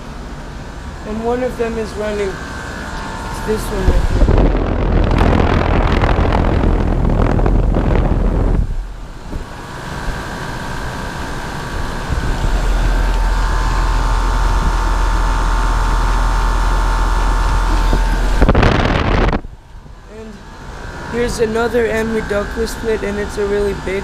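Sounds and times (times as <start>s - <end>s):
air conditioner humming: 0.0s - 24.0s
wind buffeting microphone: 1.3s - 23.0s.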